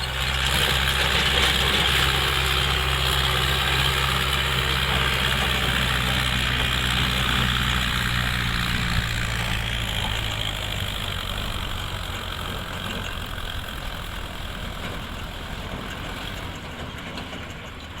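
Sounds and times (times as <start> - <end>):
diesel tractor engine running: 0.0 - 18.0.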